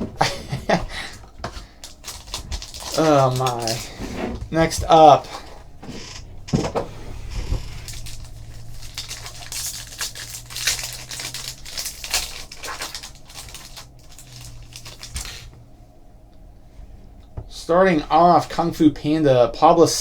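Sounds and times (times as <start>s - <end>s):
packaging crinkling and tearing: 0.2s - 6.3s, 7.4s - 15.5s.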